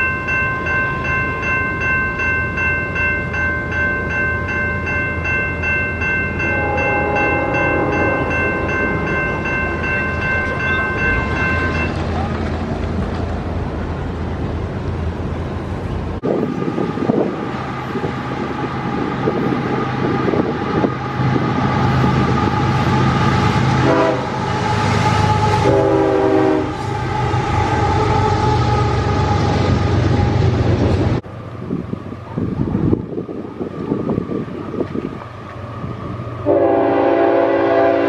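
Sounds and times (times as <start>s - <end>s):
sustained tone: 0.0s - 12.3s
train passing rumble: 0.0s - 38.0s
train horn blasts: 6.4s - 9.4s, 23.7s - 30.4s, 36.4s - 38.0s.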